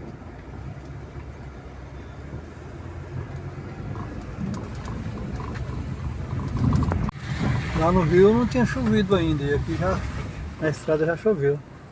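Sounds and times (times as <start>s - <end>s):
vehicle engine and tyre rumble: 0.0s - 11.9s
faint ticks: 3.3s - 7.1s.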